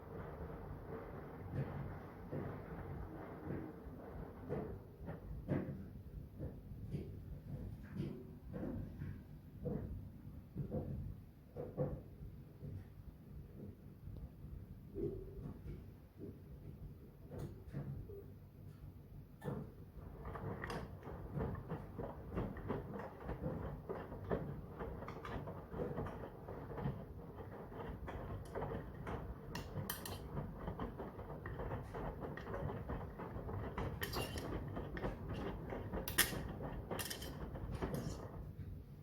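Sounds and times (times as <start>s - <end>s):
washing machine drum turning: 19.2s - 38.8s.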